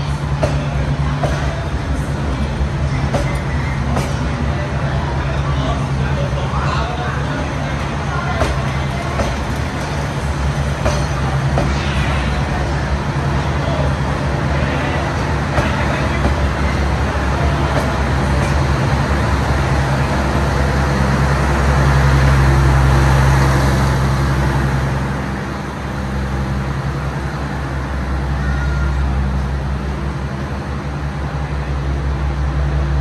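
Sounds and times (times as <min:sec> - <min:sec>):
train wheels clicking over rails: 0:00.0 - 0:04.6, 0:07.5 - 0:27.1
diesel generator hum: 0:00.0 - 0:33.0.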